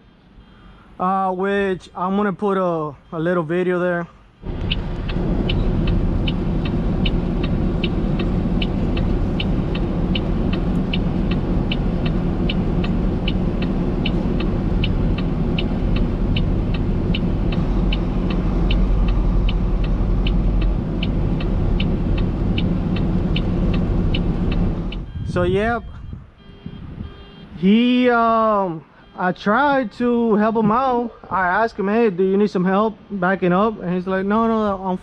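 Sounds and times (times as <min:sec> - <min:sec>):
truck back-up alarm beeping: 0:00.0 - 0:01.1, 0:02.0 - 0:31.3, 0:32.7 - 0:35.0
idling diesel truck engine: 0:04.3 - 0:25.3.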